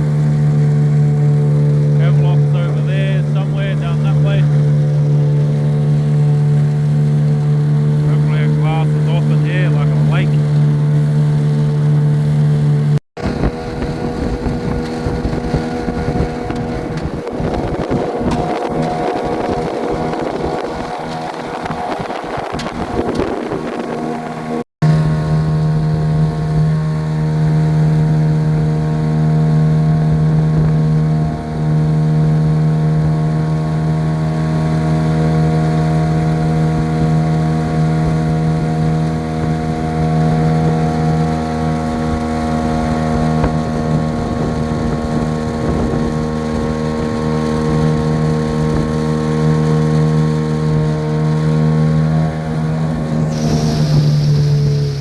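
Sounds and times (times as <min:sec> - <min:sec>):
outboard motor drone: 0:00.0 - 0:55.0
wind buffeting microphone: 0:13.2 - 0:24.6, 0:34.9 - 0:55.0.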